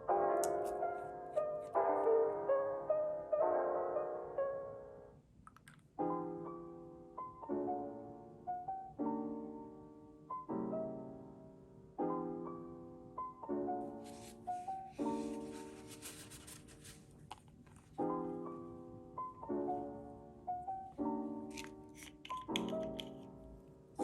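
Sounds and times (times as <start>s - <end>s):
soft piano chords: 0.0s - 24.0s.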